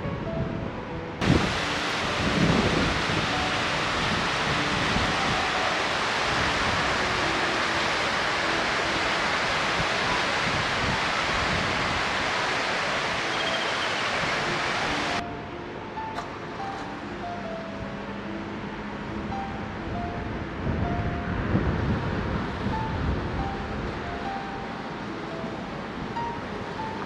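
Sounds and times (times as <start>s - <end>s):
river water rushing: 1.2s - 15.2s, 22.2s - 27.0s
faint background music: 12.5s - 27.0s.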